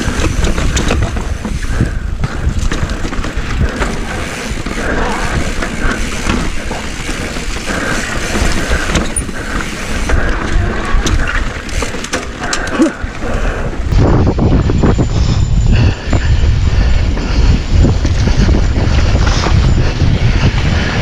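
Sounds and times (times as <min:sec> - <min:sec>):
tyres rolling over rock: 0:00.0 - 0:13.2
bike rattling with clicks: 0:00.0 - 0:21.0
wind rumbling on microphone: 0:00.0 - 0:21.0.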